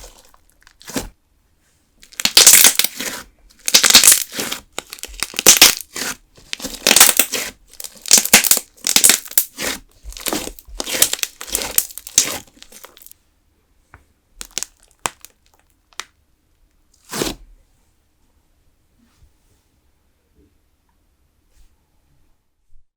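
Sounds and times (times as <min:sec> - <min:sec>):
slime squish: 0:00.0 - 0:01.2, 0:02.0 - 0:13.1, 0:14.4 - 0:15.7
slime crackling and popping: 0:02.0 - 0:13.1, 0:14.4 - 0:16.1.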